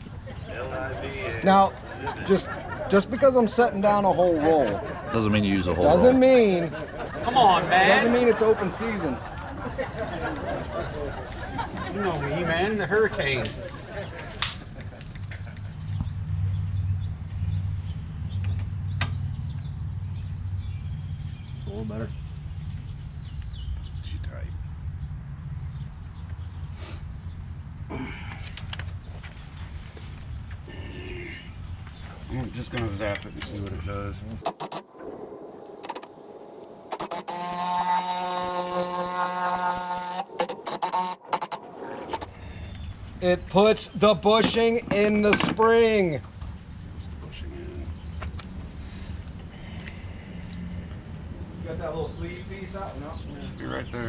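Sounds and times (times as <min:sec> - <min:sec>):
small birds chirping: 0:14.6 - 0:44.2, 0:45.9 - 0:54.0
sharp metallic click: 0:34.4 - 0:42.3
impact wrench buzzing whine: 0:34.4 - 0:42.6
low motor drone: 0:34.4 - 0:43.1.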